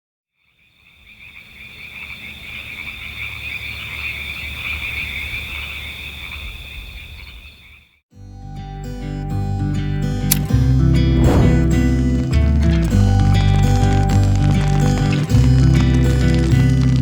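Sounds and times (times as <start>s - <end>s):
frogs calling: 0.4s - 8.0s.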